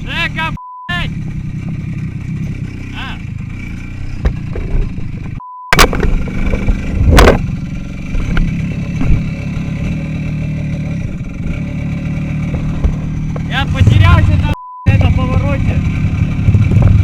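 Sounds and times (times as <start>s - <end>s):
short steady beep: 0.5s - 0.9s, 5.4s - 5.8s, 14.4s - 15.0s
small motorcycle engine running: 1.0s - 17.0s.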